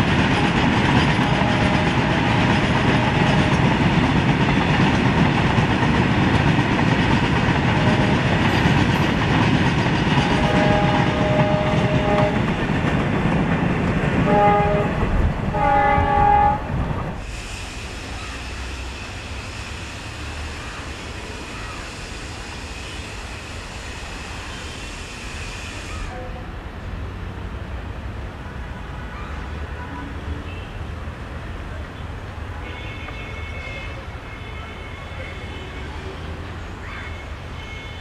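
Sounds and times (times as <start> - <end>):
freight train wheels rumbling: 0.0 - 38.0
locomotive horn: 1.2 - 3.8, 7.6 - 8.4, 10.2 - 12.6, 14.2 - 16.7, 32.6 - 36.2.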